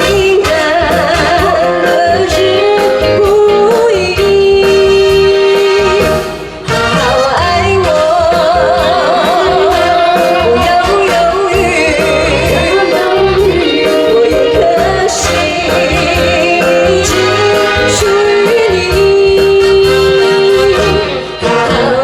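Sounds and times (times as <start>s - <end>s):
woman singing pop ballad: 0.0s - 6.2s, 6.9s - 22.0s
live band: 0.0s - 22.0s
steady drum beat: 4.2s - 19.8s.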